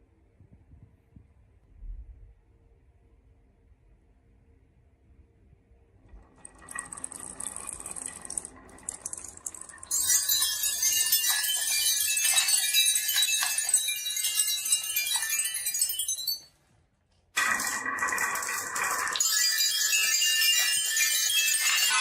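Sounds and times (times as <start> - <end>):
marbles clattering down wooden run: 6.2 - 16.5, 17.4 - 22.0.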